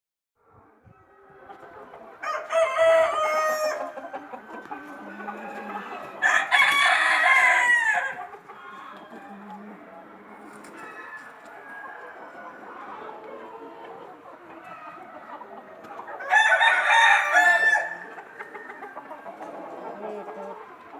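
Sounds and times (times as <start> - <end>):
hens clucking: 0.6 - 20.9
rooster crowing: 2.2 - 4.4, 5.0 - 8.2, 10.8 - 12.6, 16.2 - 19.0.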